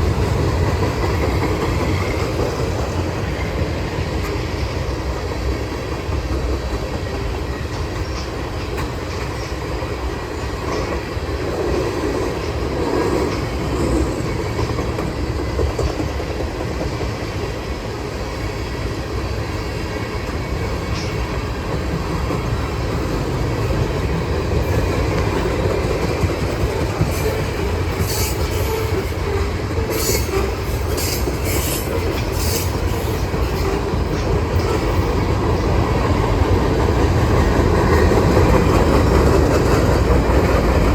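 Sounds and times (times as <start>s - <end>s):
freight train wheels clattering on rail: 0.0s - 40.9s
high wheel squeals: 27.0s - 33.9s.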